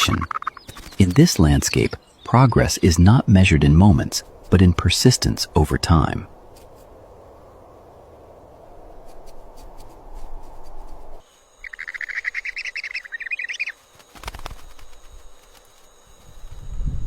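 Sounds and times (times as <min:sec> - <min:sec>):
bird chattering call: 0:00.0 - 0:02.0, 0:11.6 - 0:13.8
low rushing background: 0:00.0 - 0:11.3.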